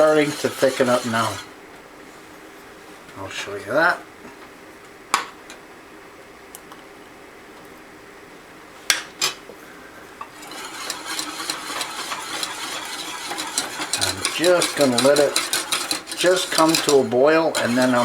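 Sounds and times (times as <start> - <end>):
whisk knocking against pot: 0.0 - 1.5, 10.3 - 18.0
whisking custard in a pot: 0.0 - 1.6, 10.3 - 18.0.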